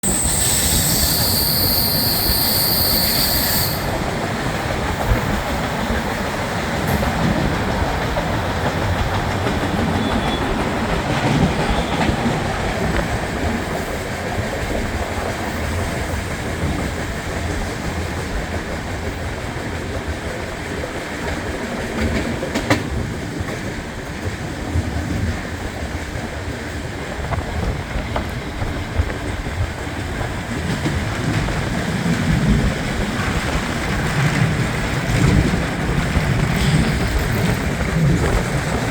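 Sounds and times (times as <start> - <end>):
high-pitched squeal: 0.0 - 4.1
train wheels rumbling: 0.0 - 38.9.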